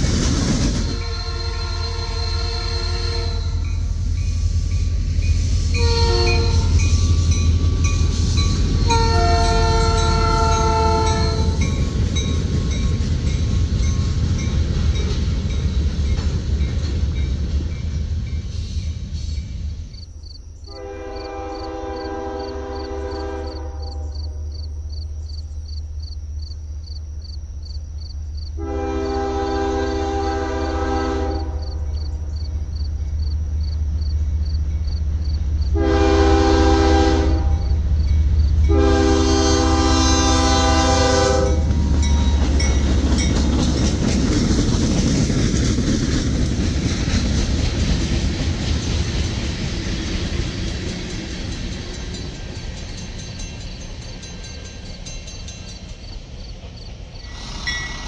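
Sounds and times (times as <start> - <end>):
train horn blasts: 0.7 - 4.1, 5.3 - 11.9, 20.7 - 24.5, 28.6 - 32.1, 35.6 - 38.0, 38.6 - 43.0
crossing bell ringing: 1.0 - 19.6, 40.7 - 43.8, 50.8 - 56.5, 57.2 - 58.0
freight cars clattering over rail joints: 41.6 - 54.4.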